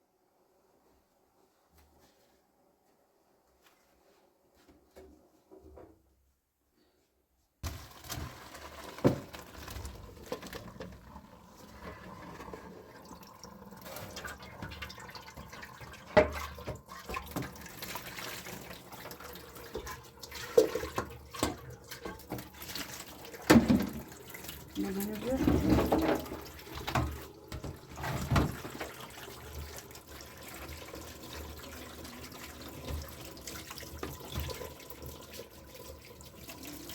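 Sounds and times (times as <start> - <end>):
water pouring and splashing: 7.6 - 36.9.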